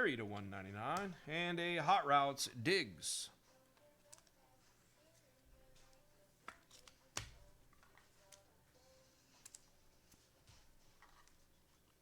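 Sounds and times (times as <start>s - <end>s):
trading cards clicking and tapping: 0.2s - 1.3s.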